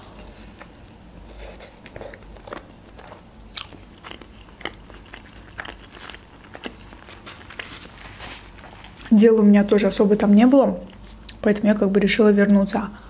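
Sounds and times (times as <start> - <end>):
crunchy chewing of bread roll: 0.0 - 9.1.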